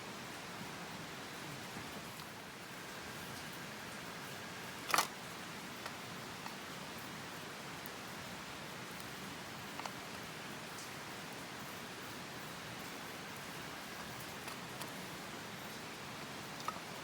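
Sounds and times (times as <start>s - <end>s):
steady rushing hiss: 0.0s - 17.0s
campfire crackling: 13.3s - 17.0s.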